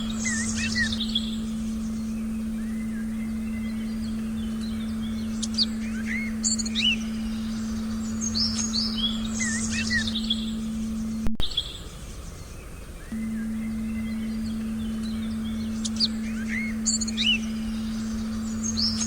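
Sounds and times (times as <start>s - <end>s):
small birds chirping: 0.0s - 19.0s
steady low tone: 0.0s - 19.0s.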